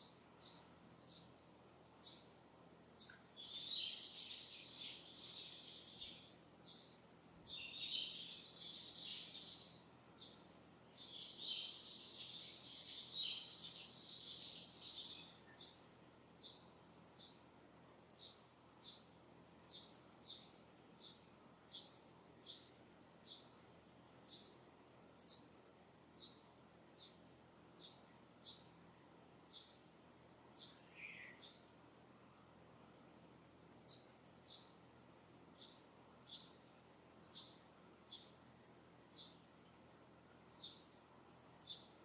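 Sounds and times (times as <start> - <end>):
bird chirps: 3.0 - 6.9, 30.4 - 31.6
songbird twittering: 3.0 - 6.9, 7.5 - 15.8, 30.4 - 31.6.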